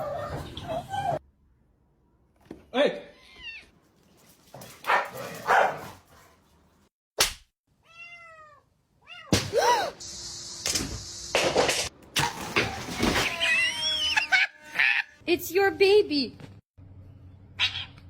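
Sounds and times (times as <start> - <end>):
cat meowing: 7.8 - 9.3, 17.6 - 18.0.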